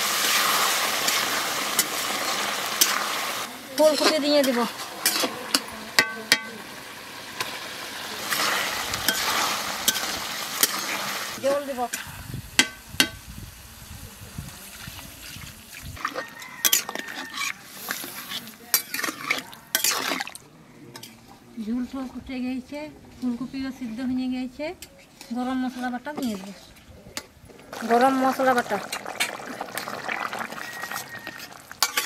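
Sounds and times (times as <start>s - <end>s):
curry sizzling in a pan: 0.0s - 20.4s, 27.7s - 32.0s
metal spatula scraping a pan: 3.7s - 6.6s, 8.2s - 11.1s, 16.0s - 20.4s, 25.0s - 26.8s, 30.7s - 32.0s.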